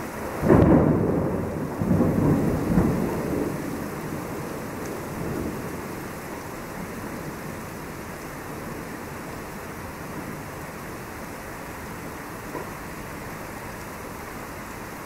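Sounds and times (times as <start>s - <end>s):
thunder rumbling: 0.0s - 11.1s
steady rain: 0.0s - 15.0s.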